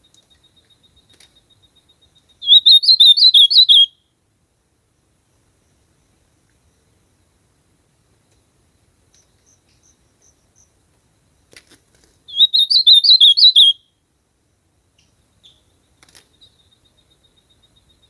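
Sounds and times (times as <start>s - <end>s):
faint high peeps: 0.0s - 3.9s, 12.3s - 13.8s.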